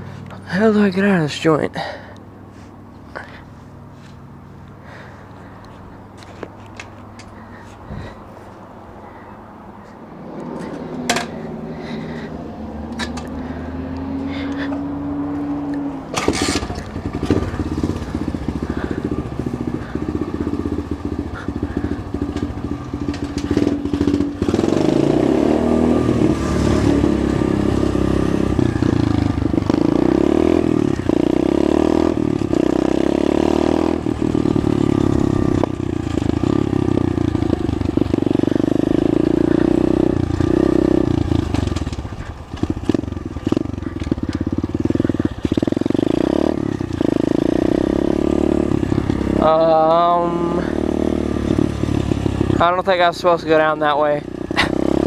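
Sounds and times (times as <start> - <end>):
pit bike engine running: 16.1 - 55.0.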